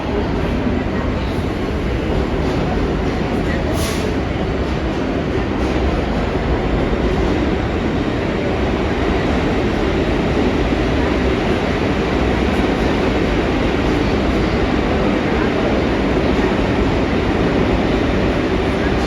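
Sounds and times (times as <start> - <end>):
subway train wheels rumbling on rails: 0.0 - 19.0.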